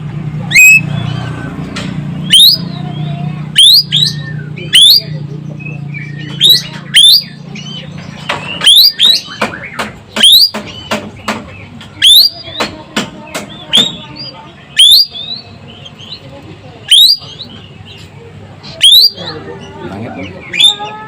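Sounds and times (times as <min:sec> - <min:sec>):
bird calling sharp rising notes: 0:00.4 - 0:07.8.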